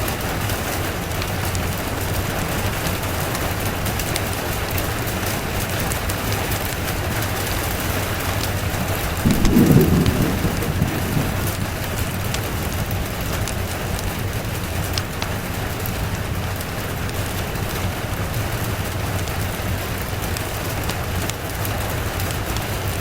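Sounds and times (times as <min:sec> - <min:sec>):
steady rain: 0:00.0 - 0:23.0
thunder rumble: 0:08.1 - 0:16.9.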